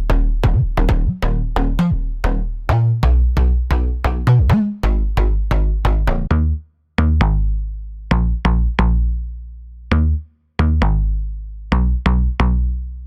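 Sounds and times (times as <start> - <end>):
deep sustained bass: 0.0 - 13.0.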